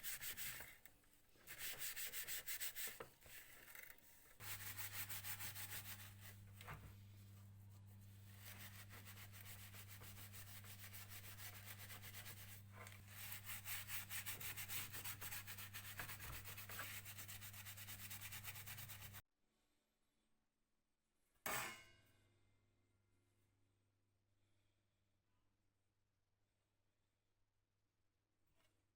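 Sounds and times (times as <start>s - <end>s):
sanding strokes: 0.0s - 0.7s, 1.5s - 3.6s, 4.4s - 6.6s, 7.8s - 19.2s.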